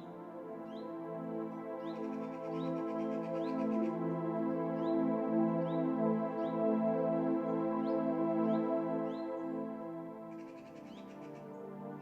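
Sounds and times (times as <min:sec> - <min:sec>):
ambient music sustained tones: 0:00.0 - 0:12.0
bird chirps: 0:10.3 - 0:11.5.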